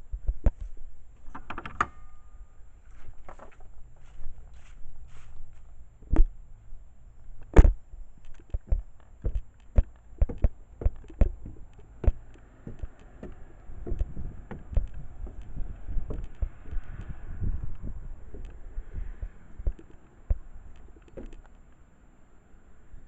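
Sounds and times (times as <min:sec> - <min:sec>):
footsteps and handling thuds: 0:00.0 - 0:01.6, 0:02.8 - 0:06.4, 0:07.4 - 0:18.6, 0:19.2 - 0:21.7
faint wind hiss: 0:13.6 - 0:23.0.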